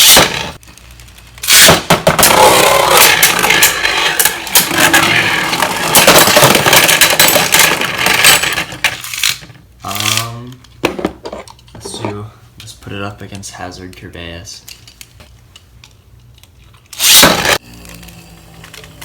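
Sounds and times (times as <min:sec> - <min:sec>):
plastic parts and packaging rustling: 0:02.9 - 0:13.0.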